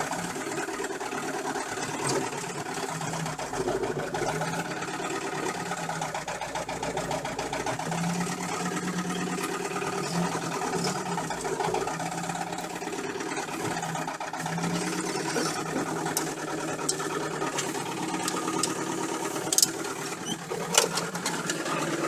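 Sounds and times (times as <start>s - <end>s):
fast even engine knock: 0.0s - 22.0s
petrol engine running: 0.0s - 22.0s.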